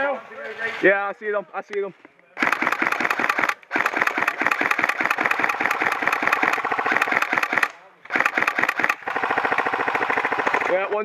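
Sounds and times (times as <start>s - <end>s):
airsoft gun firing bursts: 2.4s - 10.9s.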